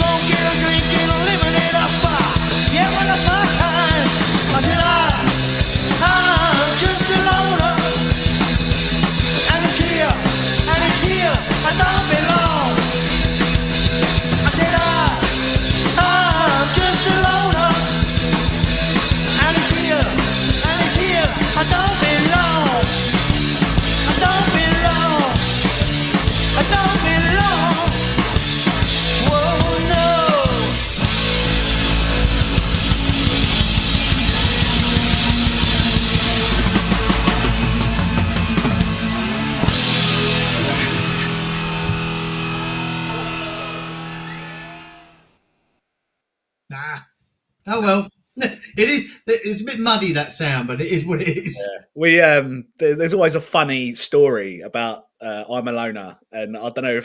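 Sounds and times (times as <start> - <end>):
drums: 0.0 - 45.0, 46.7 - 54.4
bass guitar: 0.0 - 45.3
electric guitars: 0.0 - 45.4
pitch-bending lead guitar line: 0.0 - 45.4.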